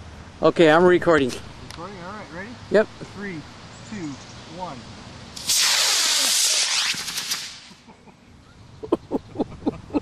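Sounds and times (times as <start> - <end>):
rocket motor rushing hiss: 5.3 - 7.9
quick run of short sharp sounds: 5.4 - 7.9.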